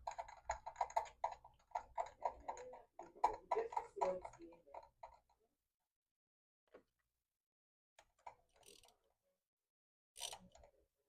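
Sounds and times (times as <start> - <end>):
ratchet wrench clicking: 8.6 - 8.9, 10.2 - 10.5.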